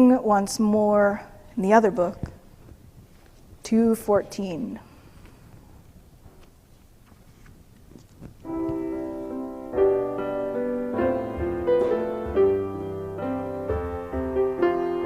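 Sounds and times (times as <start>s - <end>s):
piano playing sustained chords: 8.5s - 15.0s.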